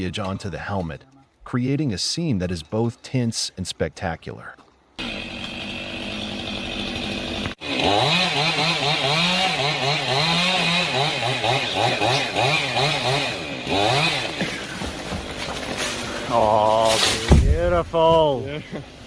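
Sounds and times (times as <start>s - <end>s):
chainsaw sawing wood: 5.0s - 17.7s.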